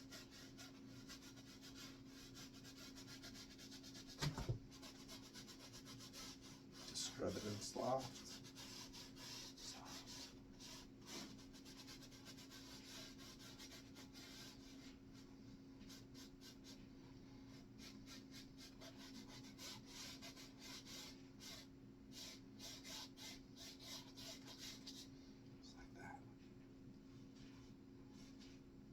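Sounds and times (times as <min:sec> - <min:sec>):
paintbrush rubbing on canvas: 0:00.0 - 0:16.9, 0:17.5 - 0:25.1
steady low hum: 0:23.4 - 0:28.9.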